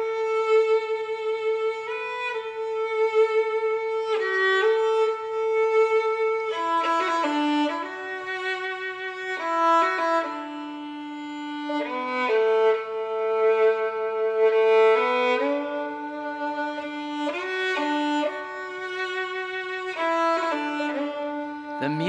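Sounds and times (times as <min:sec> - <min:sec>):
solo violin slow melody: 0:00.0 - 0:21.8.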